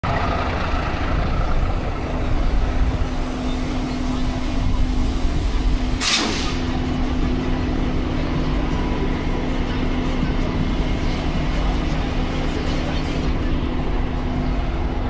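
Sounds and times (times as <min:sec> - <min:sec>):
truck engine rumbling: 0:00.0 - 0:15.0
air brake hiss: 0:04.3 - 0:06.7.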